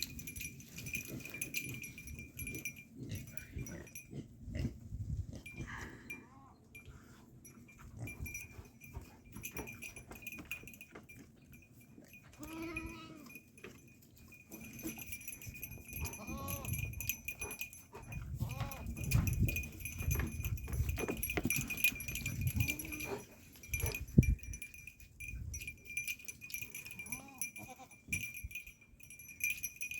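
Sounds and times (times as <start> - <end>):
animals shuffling: 0.0 - 4.0, 7.6 - 26.8.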